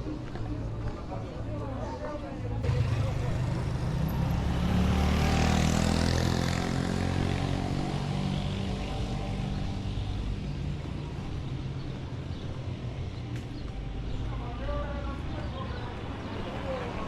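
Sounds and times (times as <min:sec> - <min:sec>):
vehicle engine running: 0:02.6 - 0:09.4.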